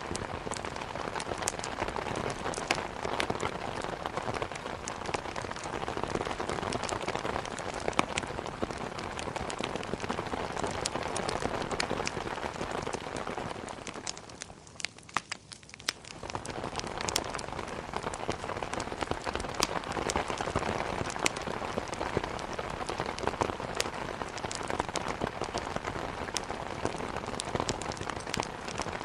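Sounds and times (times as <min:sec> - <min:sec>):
heavy rain: 0:00.0 - 0:14.5, 0:16.1 - 0:29.0.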